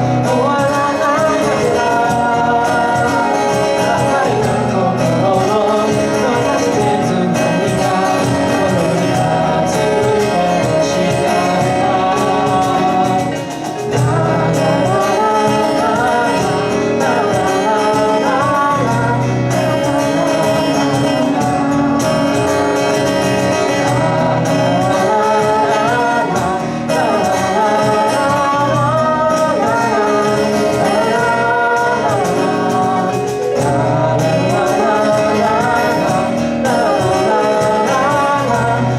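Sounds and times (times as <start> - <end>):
drums: 0.0 - 38.9
electric guitar: 0.0 - 38.9
keyboard: 0.0 - 38.9
people singing: 0.0 - 38.9.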